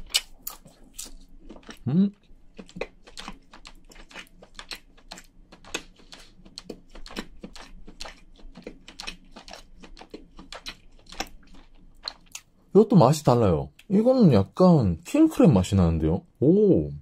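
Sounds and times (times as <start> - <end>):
person chewing: 0.0 - 12.7.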